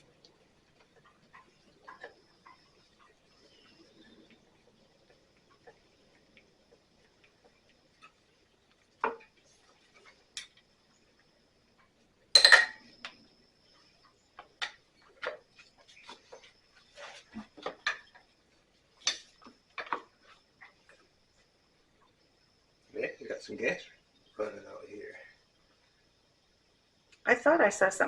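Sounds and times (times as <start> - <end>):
metal tools clinking and clattering: 12.4 - 12.8.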